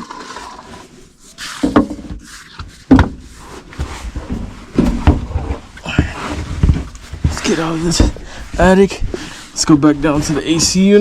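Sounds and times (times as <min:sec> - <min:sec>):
person shifting about: 0:03.2 - 0:11.0.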